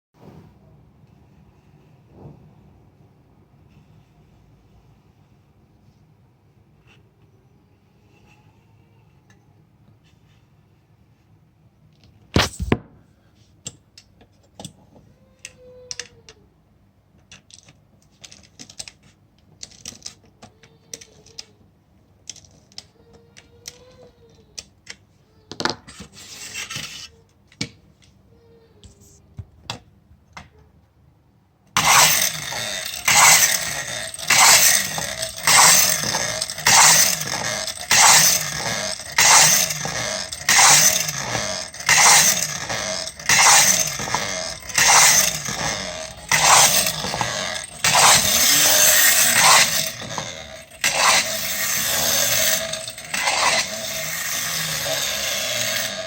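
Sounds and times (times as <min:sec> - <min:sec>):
clockwork toy whirring and rattling: 0:20.9 - 0:21.5, 0:23.6 - 0:24.7, 0:25.9 - 0:27.1, 0:31.8 - 0:56.0.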